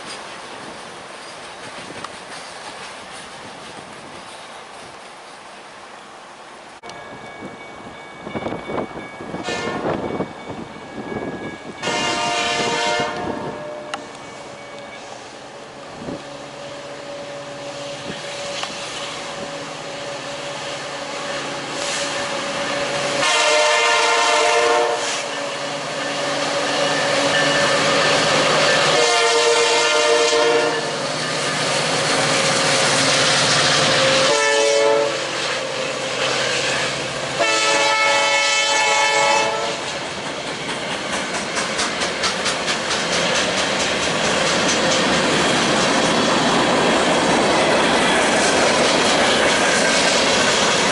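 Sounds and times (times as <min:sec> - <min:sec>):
train wheels clicking over rail joints: 0:00.0 - 0:05.5, 0:17.1 - 0:24.2, 0:39.5 - 0:50.9
locomotive air horn blasts: 0:09.4 - 0:10.0, 0:11.8 - 0:14.1, 0:23.1 - 0:25.7, 0:28.6 - 0:31.0, 0:34.1 - 0:35.4, 0:37.4 - 0:39.9.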